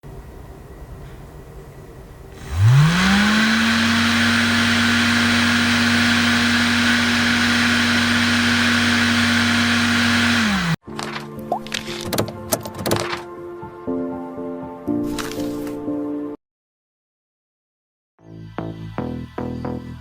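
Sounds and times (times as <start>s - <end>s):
electric fan whirring: 2.2s - 10.8s.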